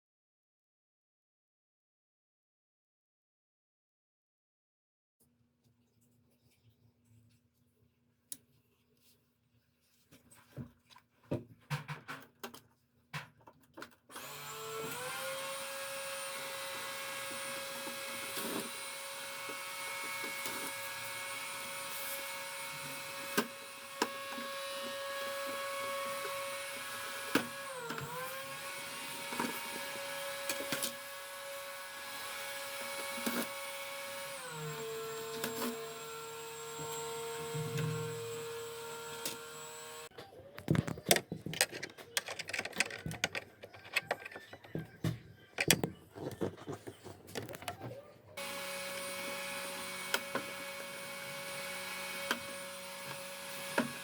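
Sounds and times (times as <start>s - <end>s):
electric motor whining: 14.1s - 40.1s, 48.4s - 54.0s
handling clicks and knocks: 40.7s - 44.9s, 45.6s - 47.9s.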